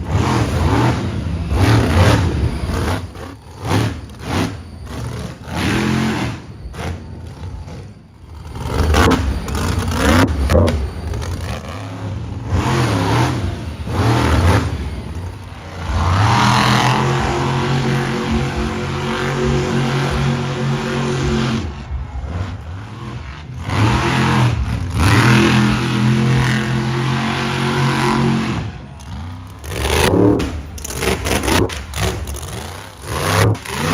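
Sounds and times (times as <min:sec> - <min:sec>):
truck engine revving hard: 0:00.0 - 0:33.9
knocks and clatter: 0:29.0 - 0:33.9.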